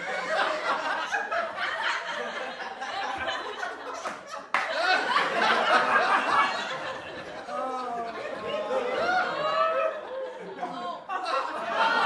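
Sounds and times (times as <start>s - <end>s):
group of people laughing: 0.0s - 12.0s
people chattering: 5.1s - 12.0s.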